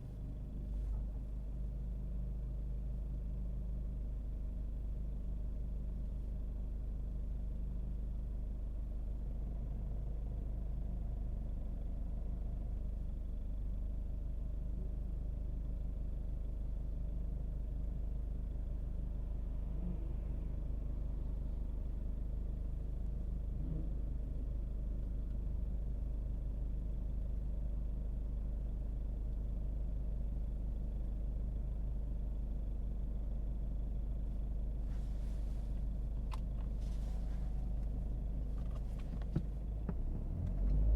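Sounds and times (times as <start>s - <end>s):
car engine and road noise: 33.4s - 40.9s.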